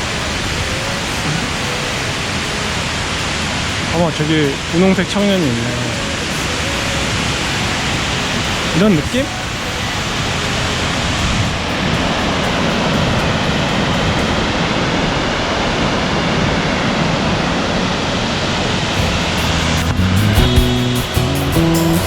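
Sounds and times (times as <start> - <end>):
waterfall roaring: 0.0 - 20.5
background music sustained notes: 19.0 - 22.0.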